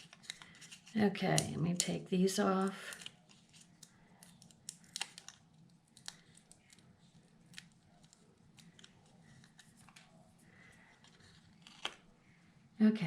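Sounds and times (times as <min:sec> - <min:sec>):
paper rustling and ticking: 0:00.0 - 0:01.9, 0:02.6 - 0:12.1.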